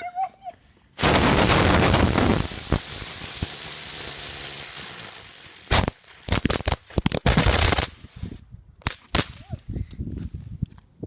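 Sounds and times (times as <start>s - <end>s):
firework cracks and pops: 1.0s - 8.1s, 8.8s - 9.5s
firework hiss: 1.0s - 8.2s.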